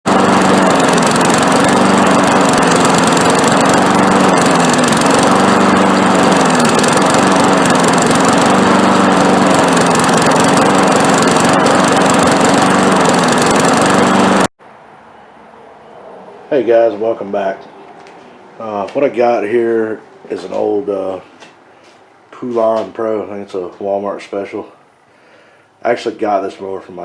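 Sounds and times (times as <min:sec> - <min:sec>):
lawn mower engine surging: 0:00.0 - 0:14.5.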